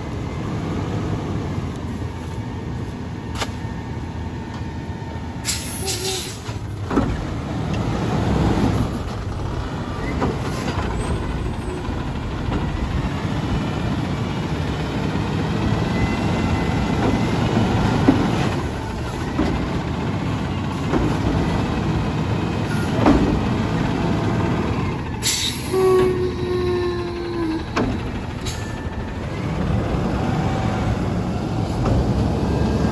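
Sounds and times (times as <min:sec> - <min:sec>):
air brakes hissing: 0:05.4 - 0:06.6, 0:25.2 - 0:28.9
truck diesel engine running: 0:06.4 - 0:32.9.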